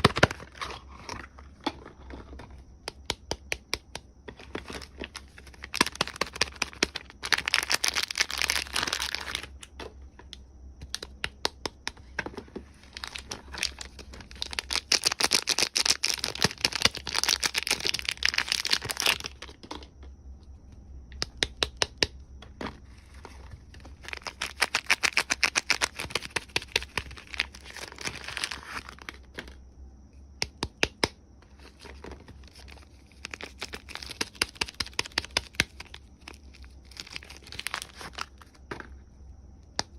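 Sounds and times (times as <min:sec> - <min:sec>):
wrapper crinkling and tearing: 0:04.6 - 0:09.5, 0:12.9 - 0:19.4, 0:24.0 - 0:29.2, 0:32.5 - 0:38.5.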